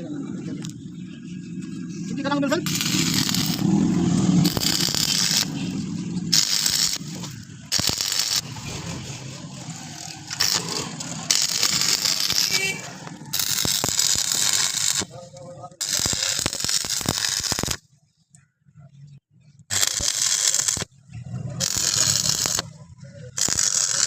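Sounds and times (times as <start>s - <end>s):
steel rattling and scraping: 1.8s - 17.7s.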